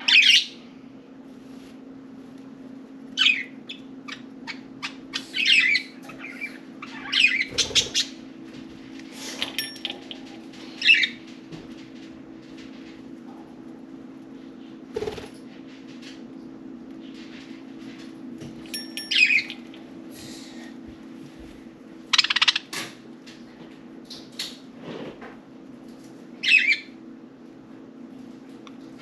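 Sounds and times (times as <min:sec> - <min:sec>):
budgerigars chirping: 0:00.0 - 0:00.6, 0:03.2 - 0:08.2, 0:22.1 - 0:22.6, 0:26.4 - 0:26.8
steady low hum: 0:00.0 - 0:29.0.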